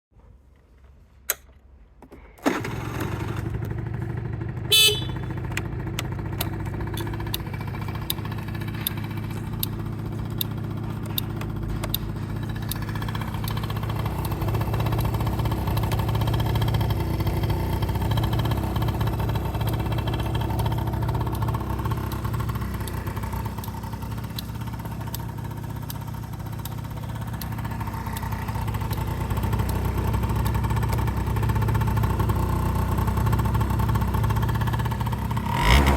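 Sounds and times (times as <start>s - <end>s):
scooter engine starting and idling: 1.3s - 35.9s
horn beep: 4.7s - 5.5s.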